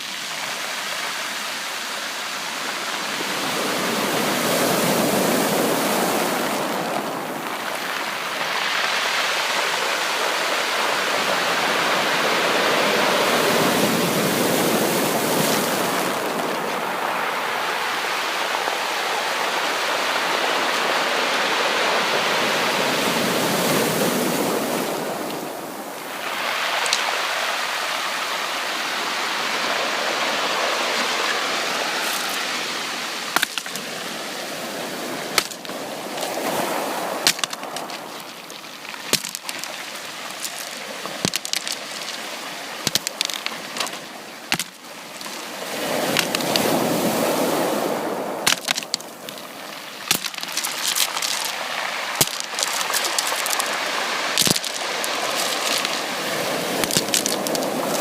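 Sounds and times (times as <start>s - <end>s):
sea surf washing ashore: 0.0s - 58.0s.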